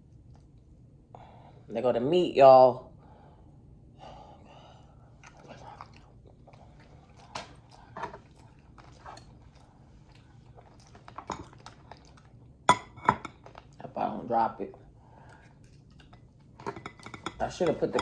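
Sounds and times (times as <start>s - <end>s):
soft chewing: 0.0s - 1.4s, 4.8s - 14.0s, 14.7s - 18.0s.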